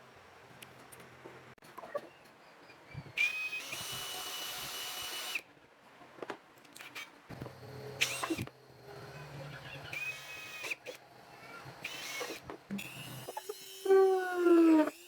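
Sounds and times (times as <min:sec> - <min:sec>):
power drill spinning: 0:03.1 - 0:05.4, 0:07.3 - 0:15.0.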